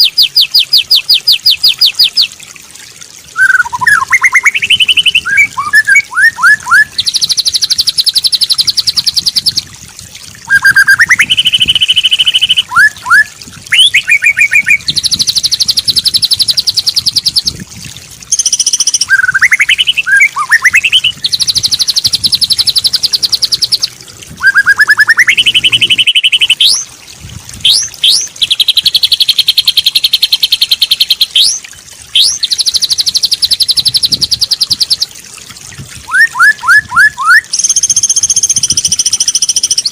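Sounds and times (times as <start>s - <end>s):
bird trilling and whistling: 0.0s - 2.3s, 3.4s - 9.6s, 10.5s - 17.6s, 18.3s - 26.9s, 27.6s - 31.6s, 32.2s - 35.1s, 36.1s - 39.9s.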